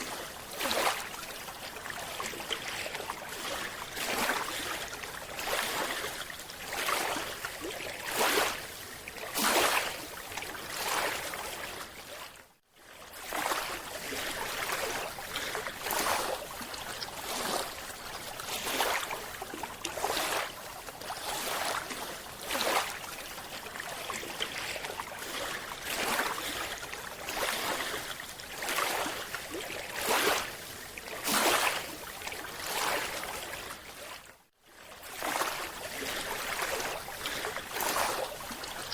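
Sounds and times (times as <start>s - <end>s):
underwater rushing and bubbling: 35.7s - 38.9s.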